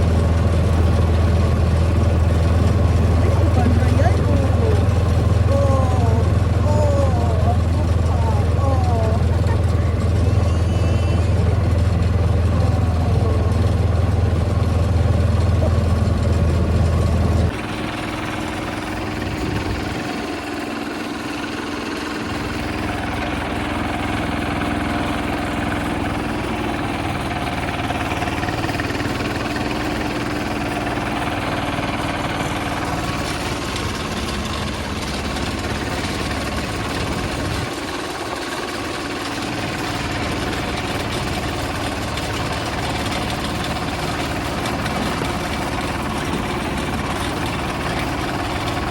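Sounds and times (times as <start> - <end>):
tractor engine idling: 0.0 - 48.9.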